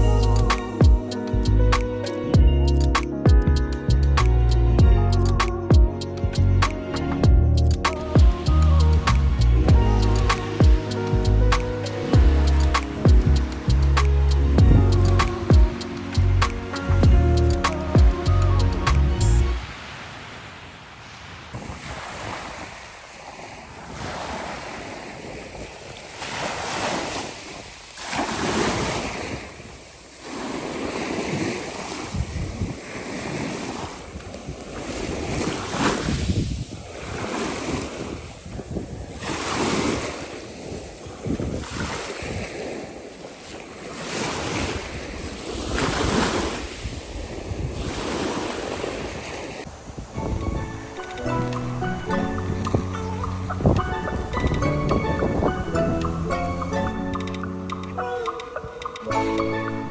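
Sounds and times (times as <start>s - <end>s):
wind on microphone: 0.0s - 57.3s
sea waves breaking on beach: 7.8s - 14.6s, 15.2s - 16.9s, 17.6s - 54.4s.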